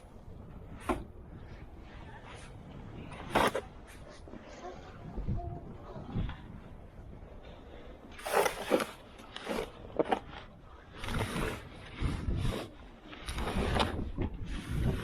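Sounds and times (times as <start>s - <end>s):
crunching and scraping in snow: 7.4s - 15.0s.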